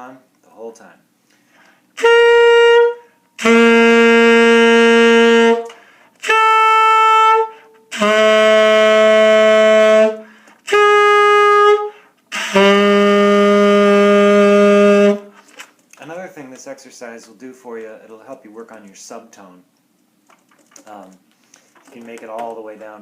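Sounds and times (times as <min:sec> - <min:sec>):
tenor saxophone octave notes: 0:02.0 - 0:15.4.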